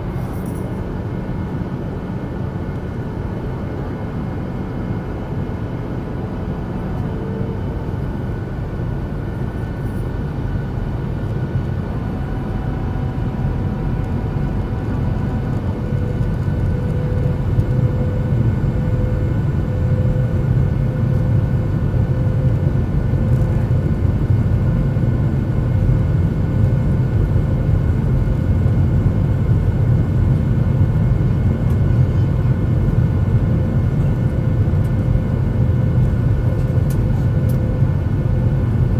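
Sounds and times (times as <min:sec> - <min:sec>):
aircraft engine rumble: 0:00.0 - 0:38.9
constant whine: 0:00.0 - 0:38.9.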